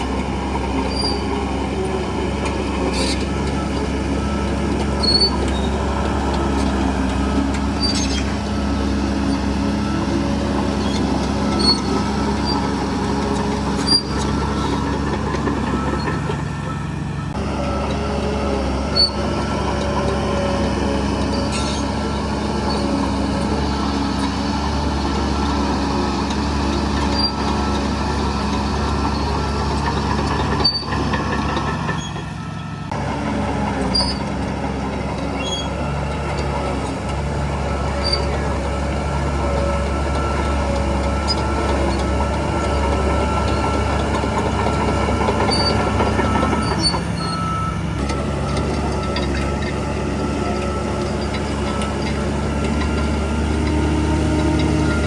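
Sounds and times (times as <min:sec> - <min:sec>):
heavy machinery diesel engine: 0:00.0 - 0:55.0
sharp clicks or squeaks: 0:07.8 - 0:08.3.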